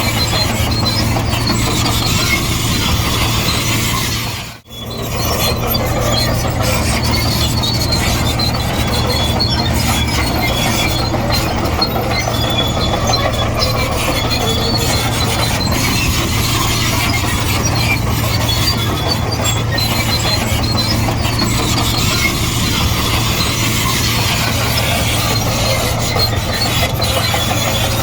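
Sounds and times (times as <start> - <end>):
diesel engine drone: 0.0 - 28.0
squealing steel tracks: 0.0 - 28.0.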